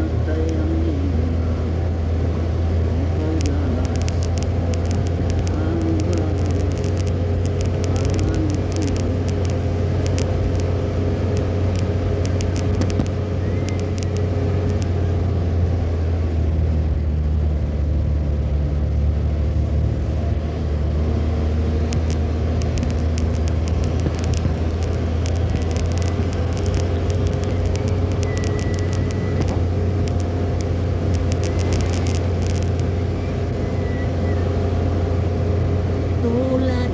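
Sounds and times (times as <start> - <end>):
car engine and road noise: 0.0 - 36.9
sharp ticks: 3.1 - 15.0, 21.4 - 34.7.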